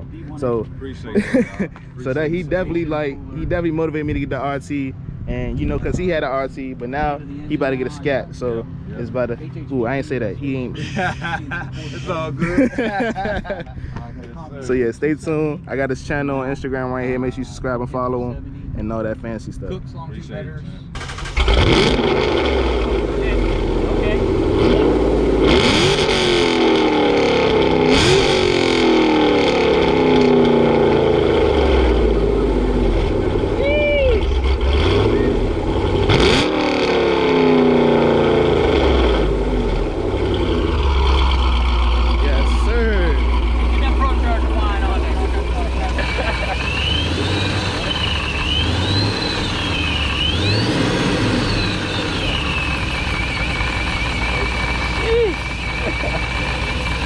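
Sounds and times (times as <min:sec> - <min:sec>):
supercharger whine: 0:18.3 - 0:57.0
car engine revving hard: 0:21.0 - 0:33.6, 0:34.3 - 0:57.0.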